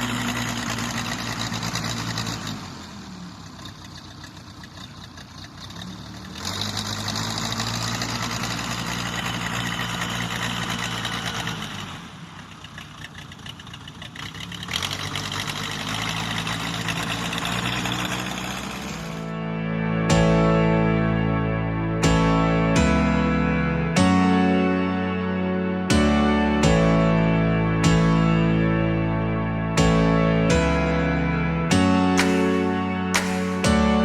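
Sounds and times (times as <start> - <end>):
engine running: 0.0 - 34.0.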